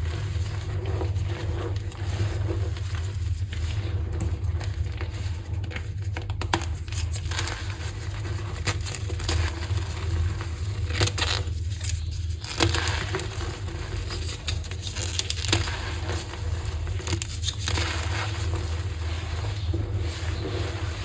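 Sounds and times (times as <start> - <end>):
steady low hum: 0.0 - 21.0
chalk crackling and squeaking: 6.9 - 21.0.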